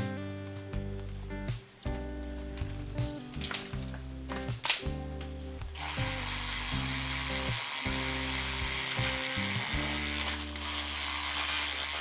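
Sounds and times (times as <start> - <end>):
background music: 0.0 - 12.0
reciprocating saw cutting bamboo: 5.8 - 12.0.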